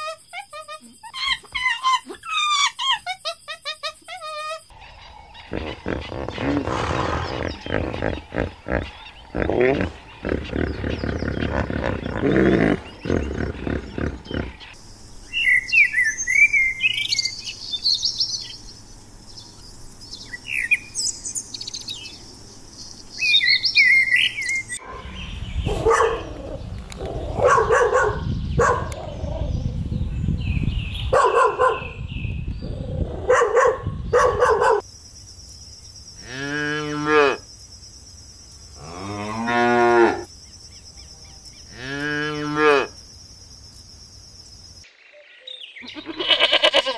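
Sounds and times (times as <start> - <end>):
small birds chirping: 0.0 - 36.3, 37.1 - 46.8
dog barking: 24.8 - 26.4, 27.3 - 29.0, 31.1 - 32.0, 33.2 - 34.9
cow mooing: 38.8 - 40.3.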